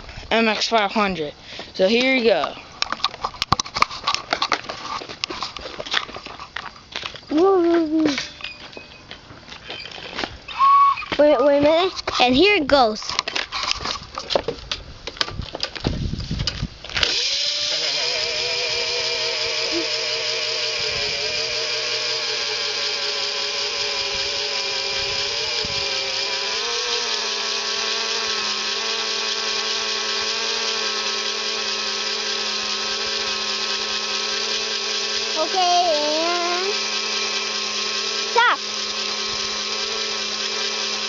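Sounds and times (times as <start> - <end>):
electric motor high whine: 16.8 - 41.0.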